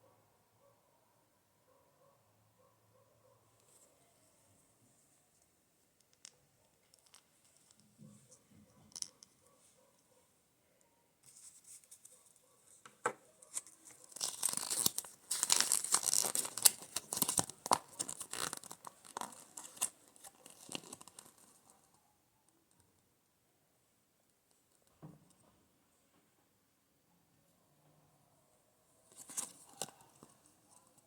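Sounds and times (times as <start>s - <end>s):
packaging tearing and crinkling: 13.5s - 21.6s, 29.2s - 30.3s.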